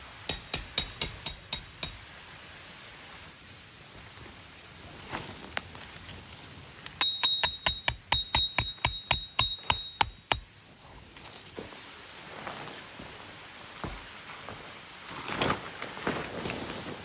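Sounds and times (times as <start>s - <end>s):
hammer striking metal: 0.3s - 2.0s, 7.0s - 10.5s.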